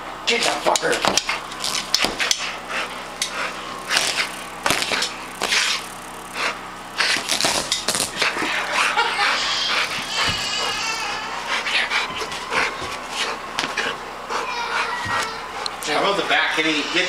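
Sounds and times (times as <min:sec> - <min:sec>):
dog tearing at a couch: 0:00.3 - 0:08.5.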